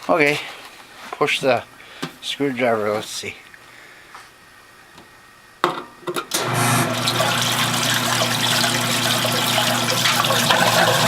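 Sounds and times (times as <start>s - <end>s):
washing machine motor humming: 6.3s - 11.0s
water churning in tub: 6.4s - 11.0s.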